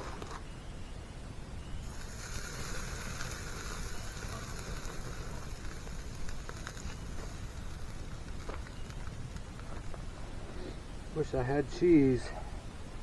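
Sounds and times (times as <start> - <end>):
meat sizzling on a grill: 1.8 - 10.0
faint pops: 1.9 - 10.8.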